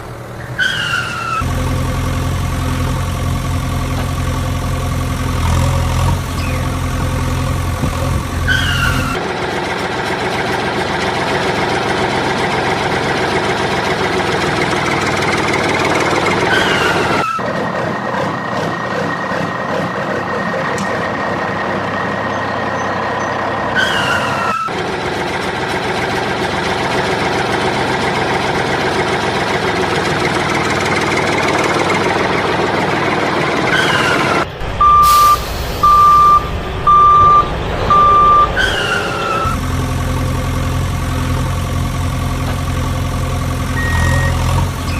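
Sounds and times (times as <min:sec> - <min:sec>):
truck engine running: 0:00.0 - 0:44.9
air brake chirp: 0:33.8 - 0:39.6
reversing beeps: 0:34.8 - 0:39.6, 0:43.8 - 0:44.9.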